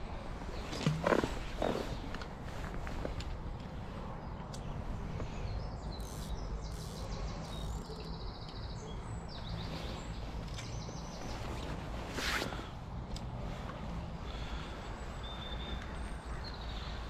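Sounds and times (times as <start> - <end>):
songbirds singing trilled phrases: 4.3 - 11.4.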